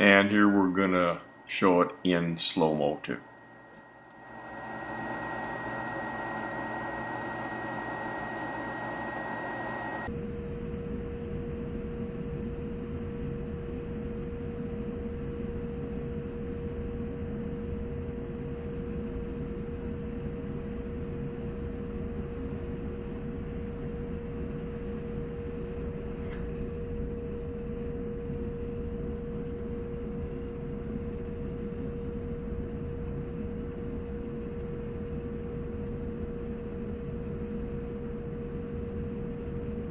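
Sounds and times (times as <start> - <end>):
gas furnace flame rushing: 0.0 - 10.1
constant humming tone: 0.0 - 39.9.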